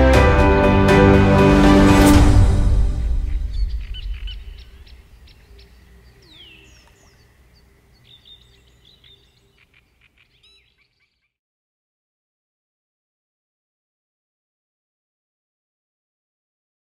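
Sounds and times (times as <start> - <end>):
background music: 0.0 - 5.0
birds chirping and whistling: 3.0 - 11.3.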